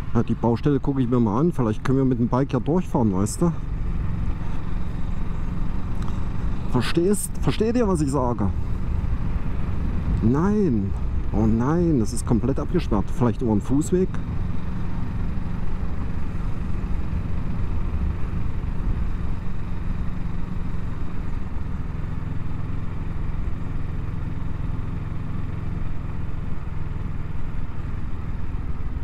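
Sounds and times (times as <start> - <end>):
motorcycle engine low drone: 0.0 - 29.0.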